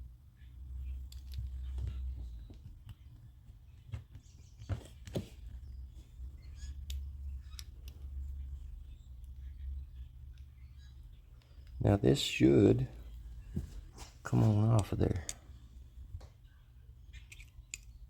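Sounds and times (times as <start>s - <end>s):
steady low hum: 0.0s - 18.0s
small metal parts clicking: 17.2s - 18.0s.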